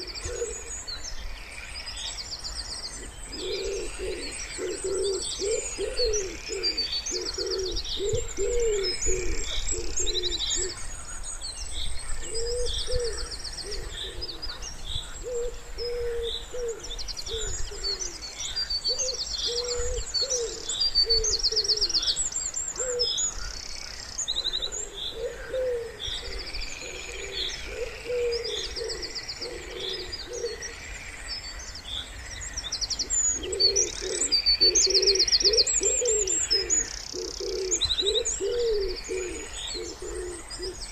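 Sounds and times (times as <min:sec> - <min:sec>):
wood pigeon cooing: 0:00.0 - 0:00.8, 0:03.0 - 0:10.8, 0:12.2 - 0:14.6, 0:15.2 - 0:18.2, 0:18.9 - 0:22.1, 0:22.7 - 0:23.2, 0:24.3 - 0:30.7, 0:33.0 - 0:40.9
songbirds chirping and trilling: 0:00.0 - 0:40.9.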